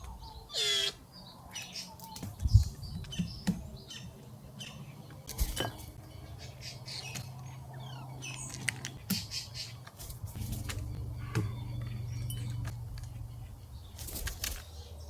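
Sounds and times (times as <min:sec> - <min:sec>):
birds chirping: 0:00.0 - 0:15.0
wings fluttering: 0:05.2 - 0:06.0, 0:08.5 - 0:14.8.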